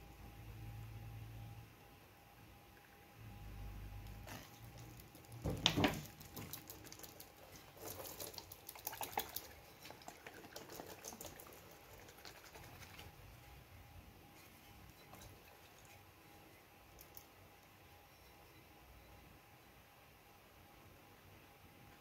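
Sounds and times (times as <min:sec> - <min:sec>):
liquid splashing: 0:05.4 - 0:13.1.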